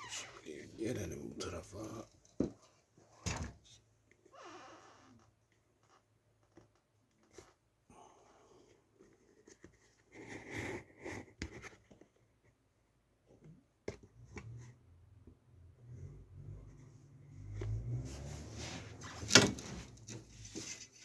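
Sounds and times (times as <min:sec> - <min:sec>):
computer parts handling noises: 0:19.0 - 0:21.0.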